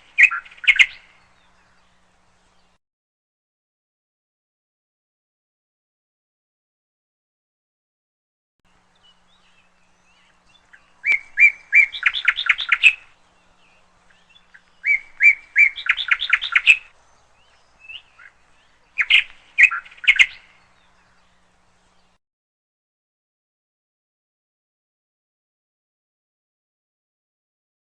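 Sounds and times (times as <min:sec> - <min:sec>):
canary singing with trills: 0:00.0 - 0:02.0, 0:08.9 - 0:22.2.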